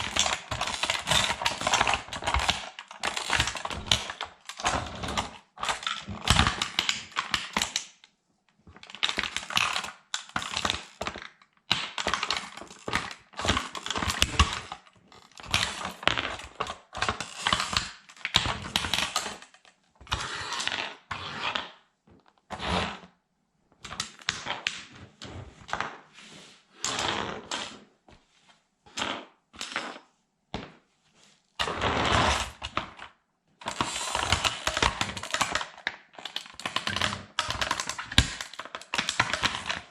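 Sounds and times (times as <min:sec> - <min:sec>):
plastic toy cracking underfoot: 0:00.0 - 0:08.0, 0:08.7 - 0:20.2, 0:32.4 - 0:39.9.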